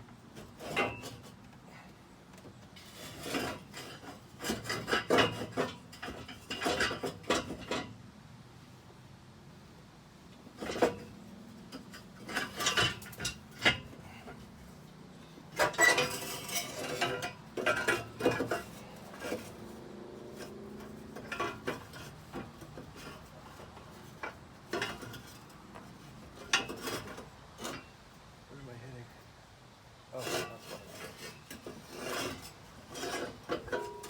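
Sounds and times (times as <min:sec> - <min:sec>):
metal pipe scraping: 0:02.8 - 0:07.9, 0:10.6 - 0:14.7, 0:15.5 - 0:28.0, 0:30.1 - 0:34.0
metallic clanks and knocks: 0:02.8 - 0:07.9, 0:11.7 - 0:14.5, 0:15.5 - 0:28.0, 0:30.4 - 0:34.0.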